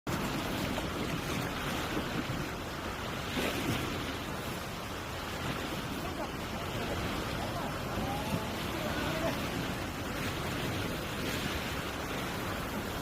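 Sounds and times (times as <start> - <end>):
sea waves washing: 0.1 - 13.0
wind buffeting microphone: 0.1 - 13.0.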